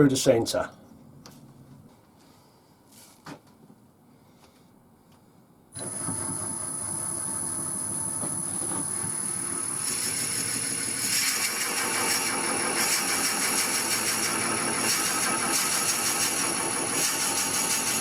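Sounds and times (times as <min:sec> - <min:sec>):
drill bit boring into wood: 0:05.8 - 0:18.0
wood lathe whine: 0:05.8 - 0:18.0.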